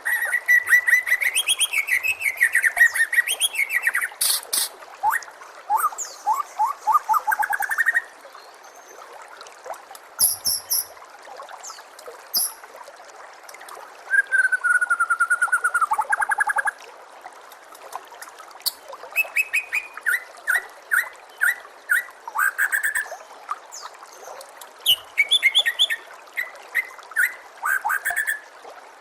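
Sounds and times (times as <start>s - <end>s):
bird singing whistled notes: 10.2s - 11.0s, 12.3s - 12.6s, 14.1s - 16.0s, 19.2s - 23.1s
short high bird calls: 10.2s - 11.0s, 12.3s - 12.6s.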